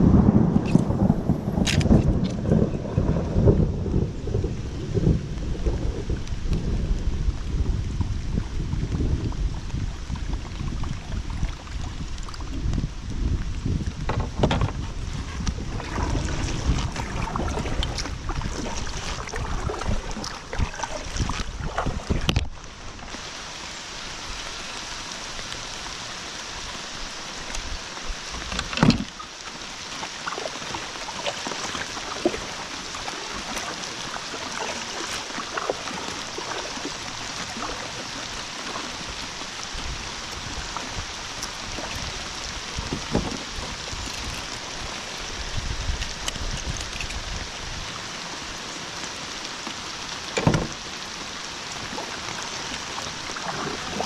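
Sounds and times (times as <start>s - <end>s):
wind buffeting microphone: 0.0s - 22.8s, 39.0s - 47.9s
river water running: 0.0s - 54.0s.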